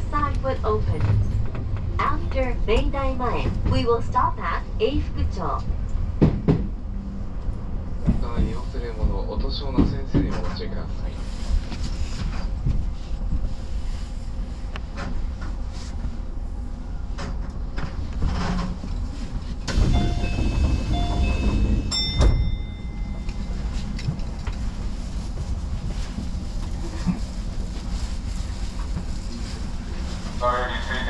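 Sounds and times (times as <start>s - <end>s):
train equipment low rumble: 0.0s - 31.0s.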